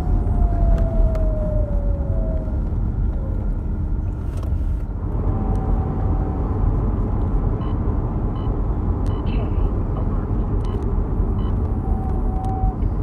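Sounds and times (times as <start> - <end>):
car driving low hum: 0.0 - 13.0.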